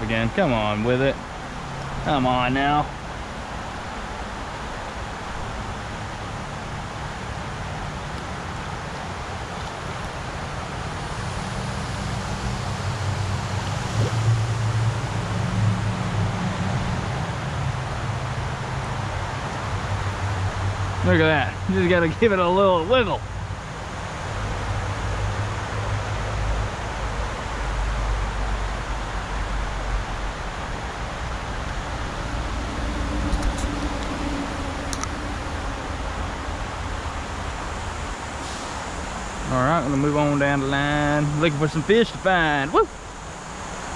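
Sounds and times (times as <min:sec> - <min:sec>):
river water rushing: 0:00.0 - 0:43.9
low rumble: 0:29.4 - 0:41.5.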